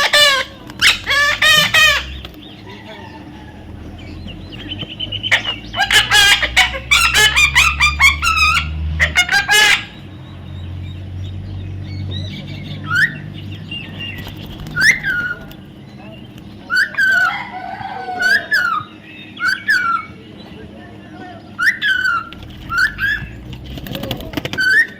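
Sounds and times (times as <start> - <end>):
parrot chirps: 0.0 - 2.2, 5.0 - 10.1, 21.6 - 23.4
parrot squawking: 0.0 - 10.1, 12.8 - 13.3, 14.8 - 15.6, 16.6 - 20.2, 21.5 - 24.9.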